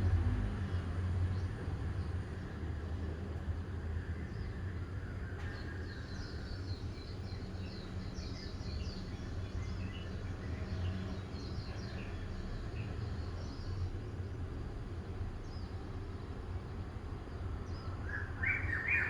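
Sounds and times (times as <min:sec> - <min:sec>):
small birds chirping: 0:04.0 - 0:19.0.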